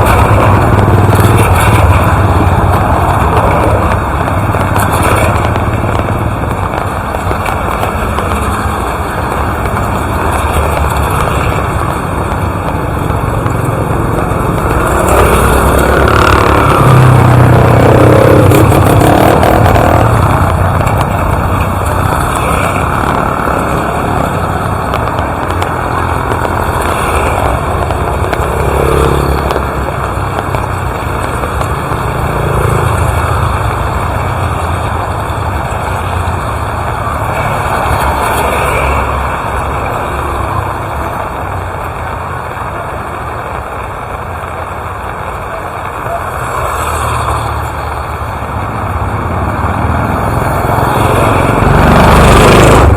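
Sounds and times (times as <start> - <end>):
rain falling: 0.0 - 52.9
vehicle engine passing: 49.8 - 52.9.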